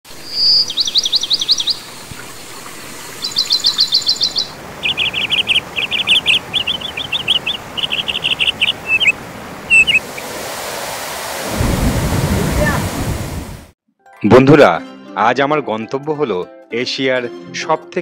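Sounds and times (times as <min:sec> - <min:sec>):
small bird trilling chirps: 0:00.2 - 0:01.8, 0:03.2 - 0:10.0.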